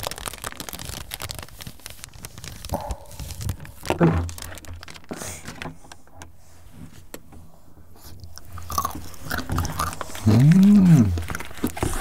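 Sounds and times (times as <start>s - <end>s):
chocolate crunching while chewing: 0.0s - 5.1s, 8.0s - 12.0s
person humming mmm: 9.6s - 11.4s.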